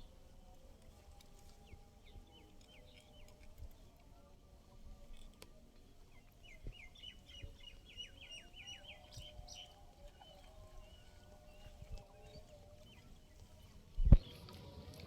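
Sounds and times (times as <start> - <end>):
faint bird chirping: 5.8 - 14.8.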